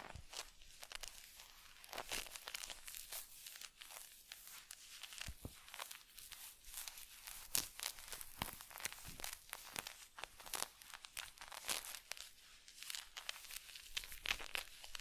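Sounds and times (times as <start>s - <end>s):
close crinkling and crackling: 0.0s - 15.0s.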